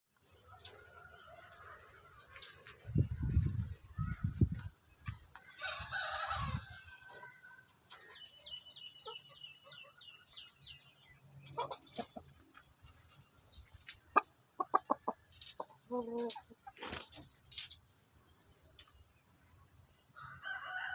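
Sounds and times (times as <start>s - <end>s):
chickens clucking: 0.2s - 10.3s, 11.1s - 19.7s
rooster crowing: 5.6s - 6.8s, 20.2s - 20.9s
chicks chirping: 7.6s - 17.0s.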